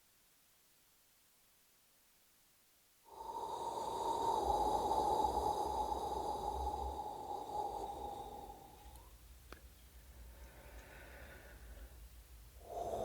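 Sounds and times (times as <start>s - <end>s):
airy breath-like rushing: 3.1s - 9.1s, 12.6s - 13.0s.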